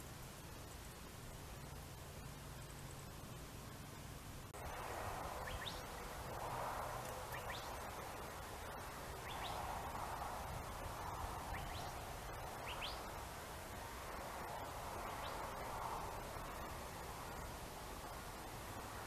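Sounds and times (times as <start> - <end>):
background hiss: 0.0 - 19.0
small birds chirping: 4.6 - 6.4, 7.0 - 10.0, 10.6 - 13.2, 14.4 - 16.7.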